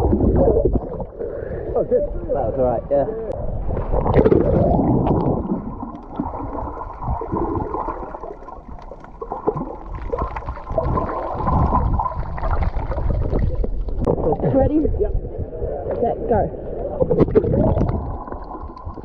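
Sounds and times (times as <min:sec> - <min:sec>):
seawater sloshing and gurgling: 0:03.4 - 0:15.9.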